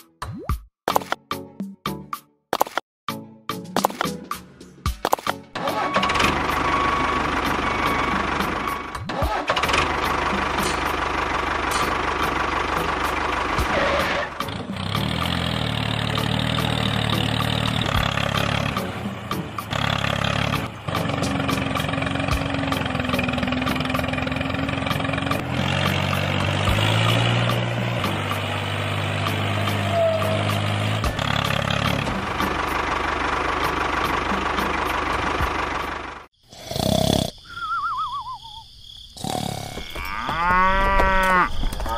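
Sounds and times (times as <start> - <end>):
small engine running: 5.6 - 36.3.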